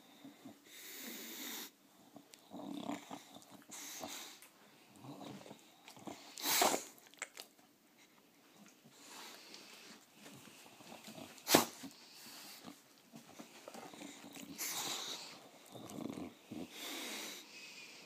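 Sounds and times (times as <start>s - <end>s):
dog reverse sneezing: 6.4s - 6.9s, 11.4s - 11.9s.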